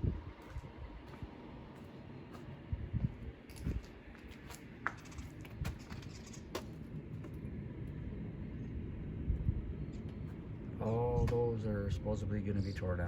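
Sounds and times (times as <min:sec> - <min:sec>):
footsteps on debris: 0:00.4 - 0:07.4
low rumble: 0:06.8 - 0:12.4.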